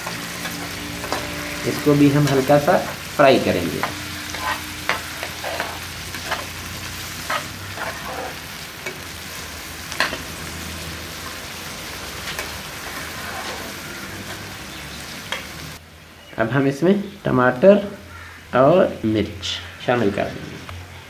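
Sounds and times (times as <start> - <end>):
metal spatula scraping a pan: 0.0 - 14.6
onion sizzling in a frying pan: 0.0 - 15.8.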